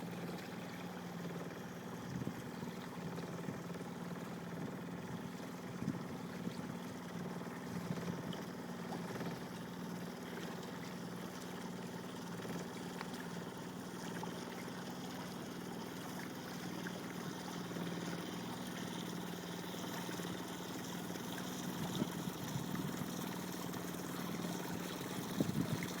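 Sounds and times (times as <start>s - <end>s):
boat engine humming: 0.0s - 26.0s
water trickling and splashing: 0.0s - 26.0s.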